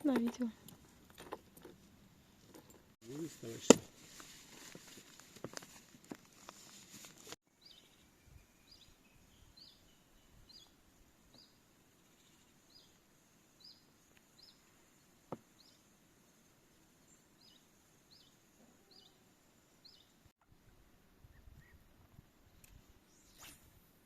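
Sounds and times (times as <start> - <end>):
small bird chirping: 7.5 - 13.0, 13.6 - 14.8, 15.5 - 15.9, 17.0 - 20.3, 22.4 - 23.8.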